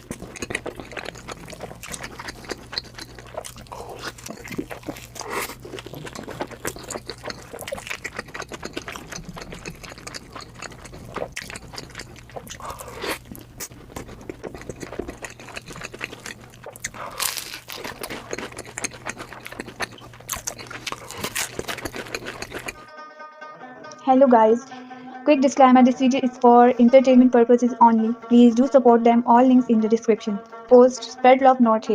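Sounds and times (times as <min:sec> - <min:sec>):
person chewing and biting food: 0:00.0 - 0:22.9
steady low hum: 0:00.0 - 0:22.9.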